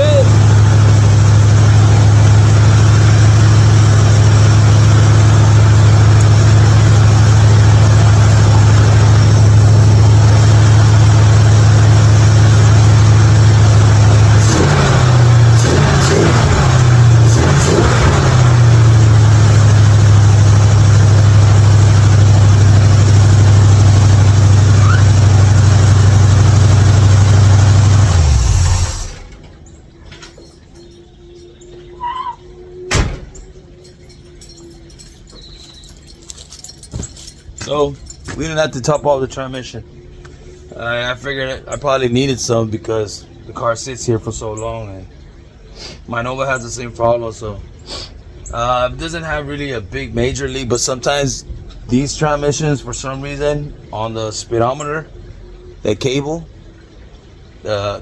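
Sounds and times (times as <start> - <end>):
hot rod engine idling: 0.0 - 30.0.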